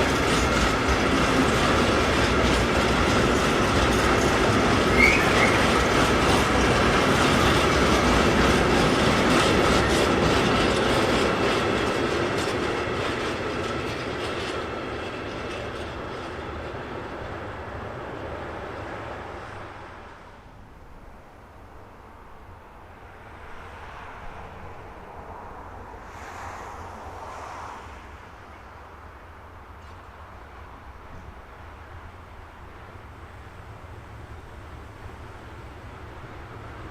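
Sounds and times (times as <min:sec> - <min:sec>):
train wheels clattering: 0:00.0 - 0:17.4.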